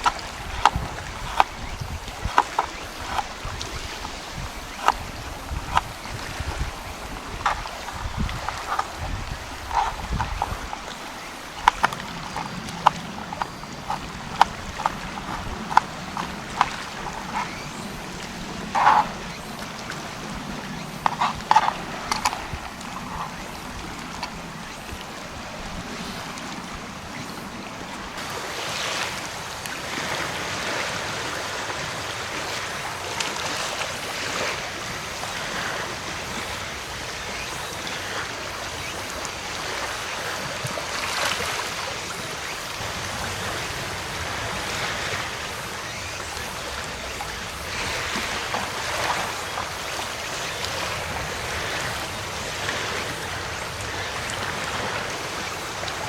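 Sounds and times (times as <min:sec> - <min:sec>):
waves washing onto beach: 0:00.0 - 0:56.0.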